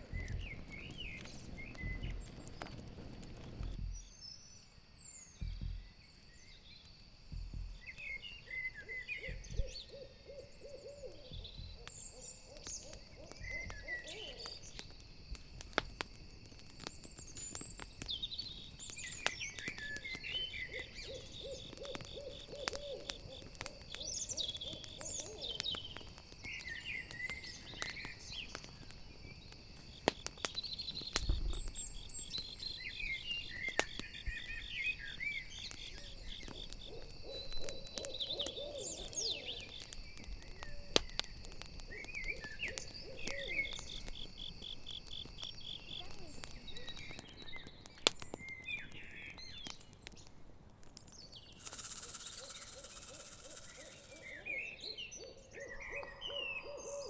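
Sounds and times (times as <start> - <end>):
crickets chirping: 0.0 - 49.6, 51.4 - 57.0
campfire crackling: 0.0 - 55.8
owl hooting: 8.7 - 14.7, 20.6 - 25.8, 36.0 - 39.8, 42.0 - 43.8, 51.6 - 57.0
high chirps: 51.5 - 54.8.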